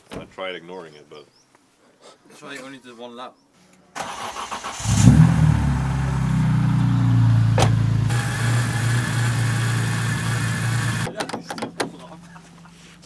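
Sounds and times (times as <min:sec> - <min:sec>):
car engine idling: 0:04.0 - 0:11.1.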